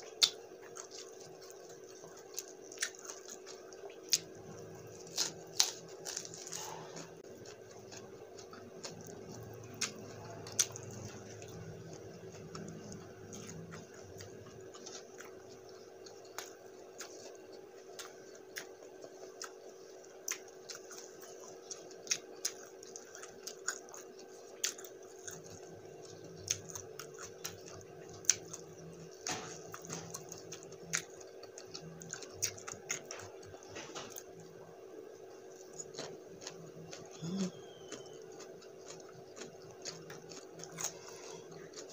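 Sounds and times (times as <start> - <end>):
chewing with mouth clicks: 0.0 - 41.9
low steady hum: 0.0 - 41.9
small crunches: 0.2 - 34.4.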